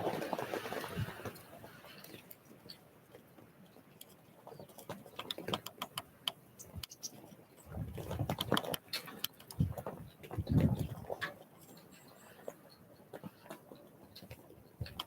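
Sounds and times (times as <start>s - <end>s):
birds pecking clicks: 4.5s - 7.2s, 8.0s - 9.7s.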